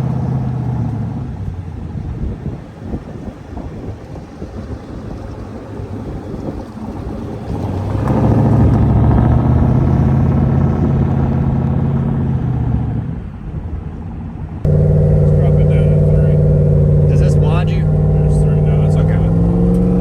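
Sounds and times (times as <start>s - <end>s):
car engine at high revs: 0.0s - 20.0s.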